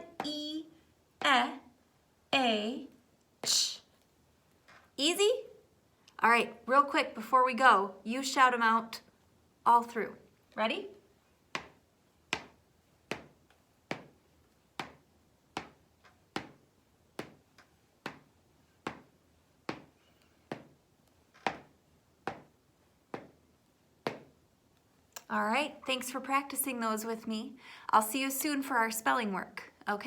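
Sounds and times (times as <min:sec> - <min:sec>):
sharp taps: 0:11.5 - 0:14.2, 0:14.8 - 0:20.8, 0:21.4 - 0:22.5, 0:23.1 - 0:23.4.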